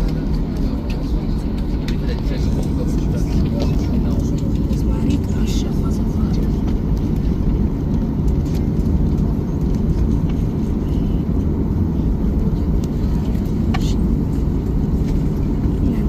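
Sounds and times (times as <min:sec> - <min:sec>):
jet engines rumbling in cabin: 0:00.0 - 0:16.0.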